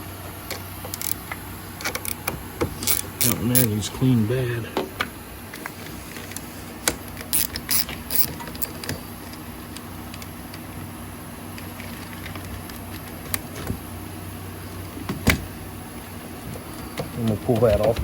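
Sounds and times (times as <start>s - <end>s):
steady low hum: 0.0s - 18.0s
metal parts clicking and knocking: 0.5s - 1.2s, 6.8s - 9.4s.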